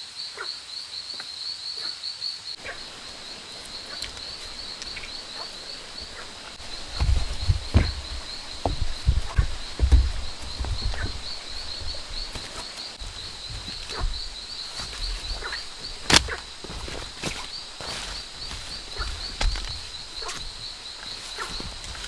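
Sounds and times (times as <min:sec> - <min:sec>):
low thumps: 0:02.6 - 0:22.0
sharp crack: 0:13.9 - 0:17.7.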